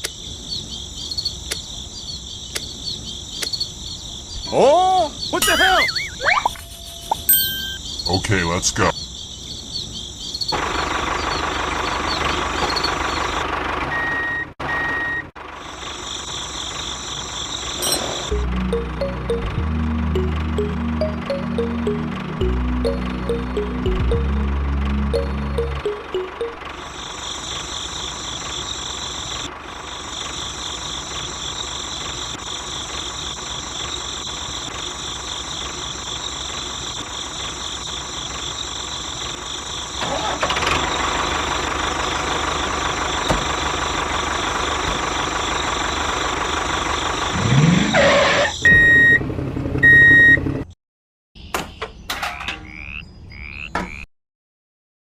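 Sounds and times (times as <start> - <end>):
high regular chirping: 5.2 - 10.5
short steady beeps: 5.4 - 7.8
small tractor engine running: 10.5 - 37.6, 39.0 - 48.0.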